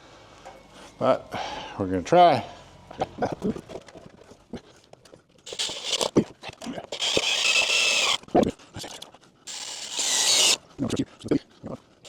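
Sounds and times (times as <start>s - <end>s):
cordless drill driving screws: 5.5s - 6.1s, 6.9s - 8.2s, 9.5s - 10.6s.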